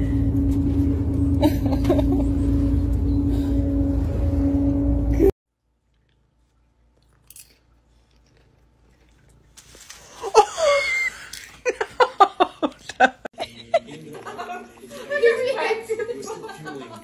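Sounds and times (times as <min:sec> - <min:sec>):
laughter: 0:01.4 - 0:02.3, 0:10.2 - 0:17.0
woman's startled cry: 0:10.2 - 0:11.3.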